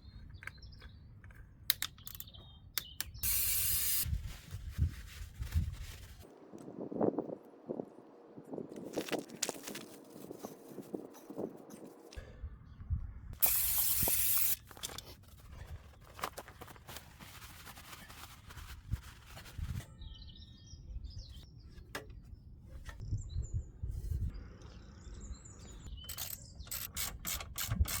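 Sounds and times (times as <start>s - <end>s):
birds chirping: 0.0s - 4.0s, 23.0s - 27.3s
clicks and knocks of handling: 0.2s - 3.2s
loud spray hiss: 3.2s - 4.0s, 13.4s - 14.6s.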